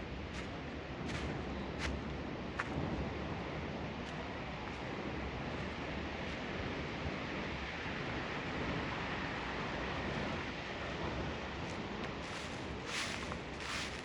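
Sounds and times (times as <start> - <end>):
faint rustles: 12.2 - 14.0.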